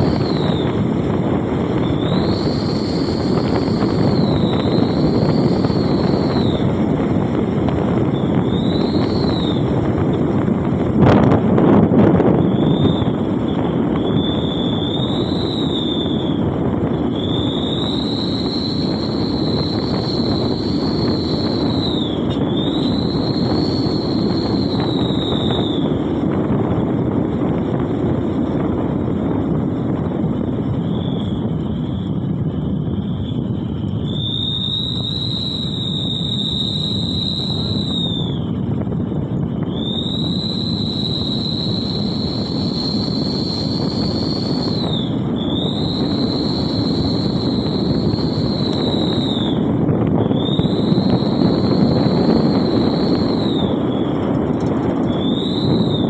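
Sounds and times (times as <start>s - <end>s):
high whistling tone: 0.0s - 10.2s, 12.2s - 26.0s, 30.8s - 32.2s, 33.0s - 38.7s, 39.6s - 56.0s
car engine and road noise: 0.0s - 39.8s.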